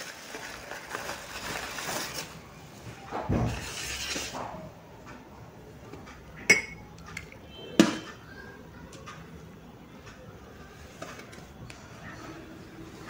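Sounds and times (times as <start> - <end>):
metal ladle scraping a pot: 3.6 - 4.6.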